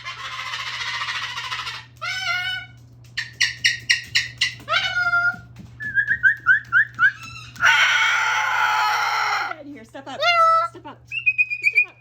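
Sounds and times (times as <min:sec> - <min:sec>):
cockatoo calls and chirps: 0:00.0 - 0:05.4
cockatoo screeching: 0:00.0 - 0:05.4, 0:07.1 - 0:09.6.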